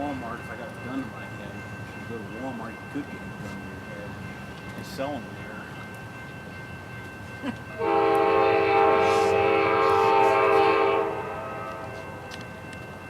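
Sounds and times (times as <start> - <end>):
train horn blast: 7.8 - 12.4.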